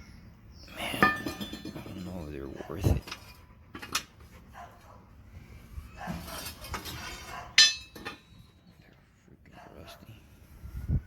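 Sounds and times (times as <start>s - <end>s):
steel leaves clinking and scraping: 0.8s - 4.5s, 6.1s - 8.9s
sharp metal clank: 7.6s - 8.3s.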